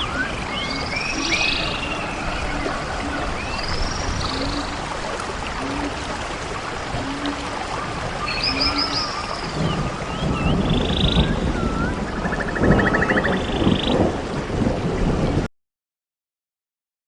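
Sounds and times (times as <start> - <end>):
birds chirping and trilling: 0.0 - 5.0, 8.2 - 14.0
low wind gusts: 0.0 - 15.5
steady outdoor rushing noise: 0.0 - 15.5.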